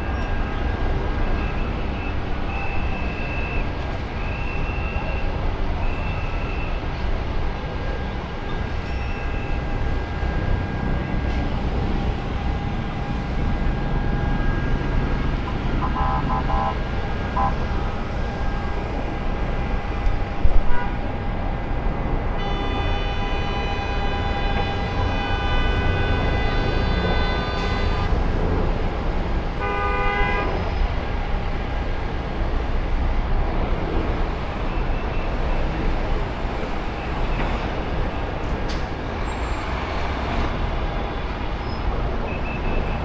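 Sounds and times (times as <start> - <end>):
vehicle traffic rumble: 0.0 - 43.0
vehicle horn: 15.8 - 18.6, 22.4 - 28.7, 29.5 - 30.8.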